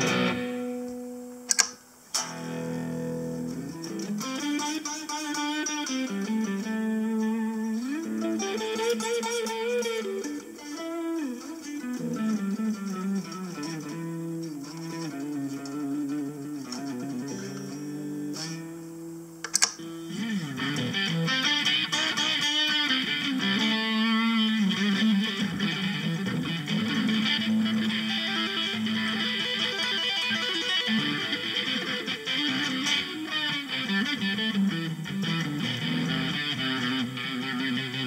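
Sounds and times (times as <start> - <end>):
electric guitar melodic lines: 0.0 - 38.0
sharp click: 0.8 - 2.3, 19.4 - 19.8.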